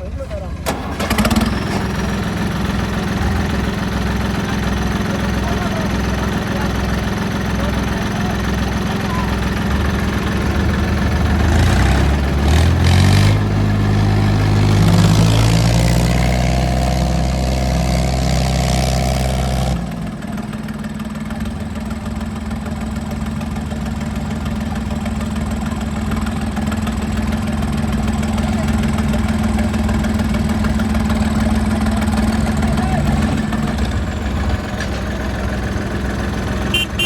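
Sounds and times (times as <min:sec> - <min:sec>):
diesel tractor engine revving: 0:00.0 - 0:37.0.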